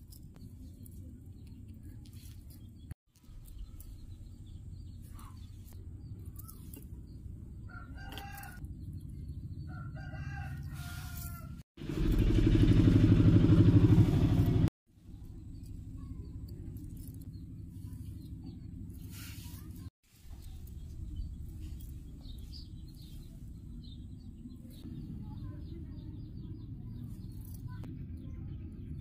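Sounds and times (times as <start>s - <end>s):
loud low rumbling: 11.8s - 19.2s, 20.3s - 29.0s.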